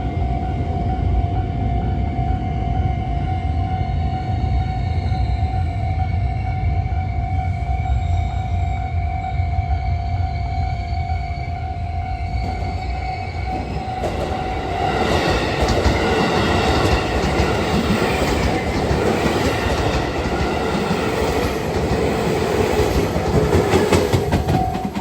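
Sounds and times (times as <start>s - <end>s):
electric train passing: 0.0s - 25.0s
rail clicks: 12.3s - 25.0s
train wheels clattering: 12.4s - 25.0s.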